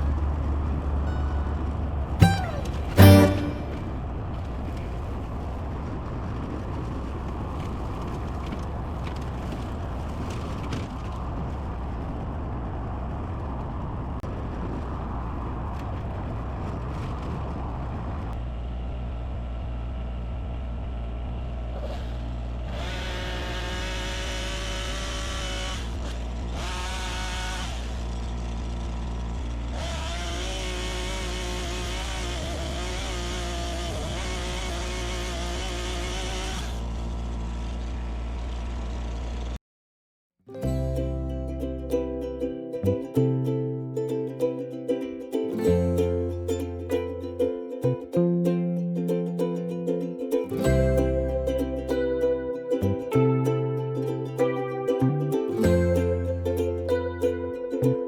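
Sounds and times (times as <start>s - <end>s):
engine humming steadily: 0.0s - 14.0s, 18.0s - 39.6s.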